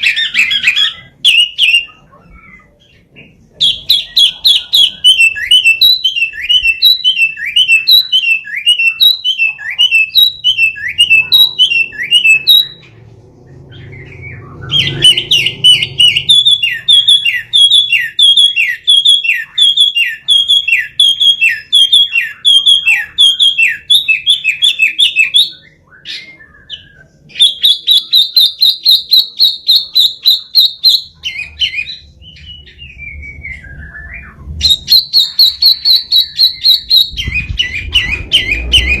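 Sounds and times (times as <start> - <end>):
magpie calling: 0.0 - 3.0, 3.6 - 12.8, 13.7 - 32.6, 34.7 - 39.0.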